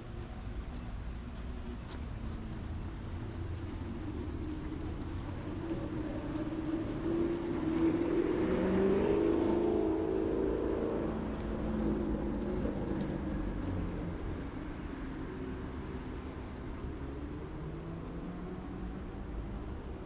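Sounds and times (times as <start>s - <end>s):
vehicle engine passing by: 4.6s - 14.4s.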